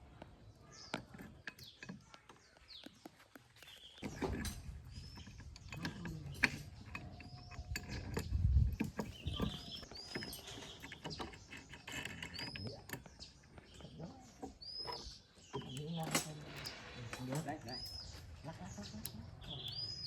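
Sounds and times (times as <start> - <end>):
small birds chirping: 0.0 - 20.0
metal machine parts clicking: 4.0 - 13.8.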